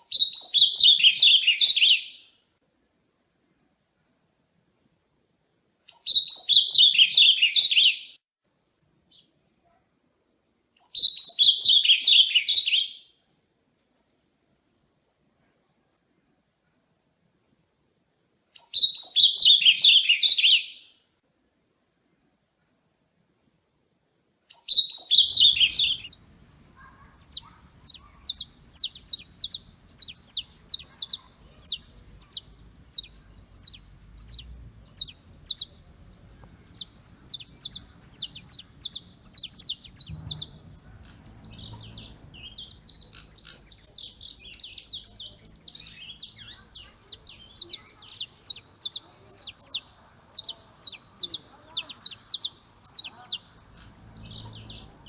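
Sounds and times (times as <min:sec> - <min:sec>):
songbird singing: 0:00.0 - 0:02.4, 0:05.9 - 0:08.2, 0:10.8 - 0:13.2, 0:18.6 - 0:21.1, 0:24.5 - 0:55.0.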